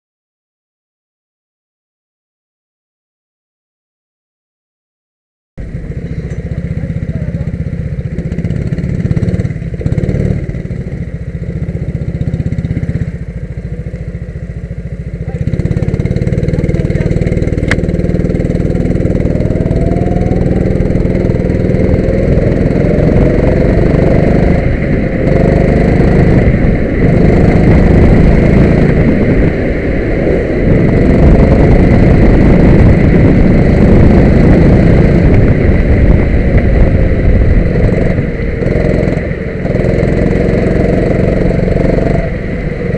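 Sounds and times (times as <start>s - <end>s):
go-kart engines revving: 5.6s - 42.9s.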